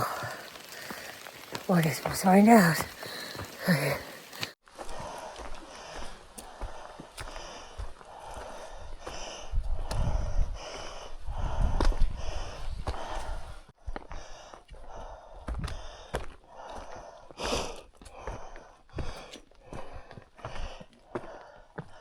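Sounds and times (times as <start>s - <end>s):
footsteps clicking: 0.8s - 10.8s, 15.4s - 22.0s
person breathing hard: 3.0s - 22.0s.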